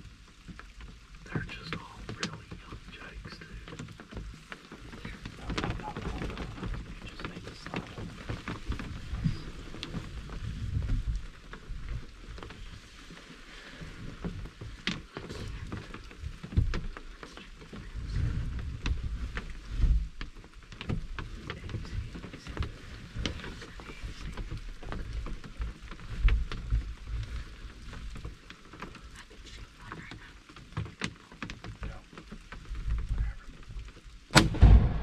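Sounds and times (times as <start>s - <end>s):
light rain pattering: 0.0s - 35.0s
low rumbling thumps: 1.2s - 12.8s, 31.8s - 35.0s.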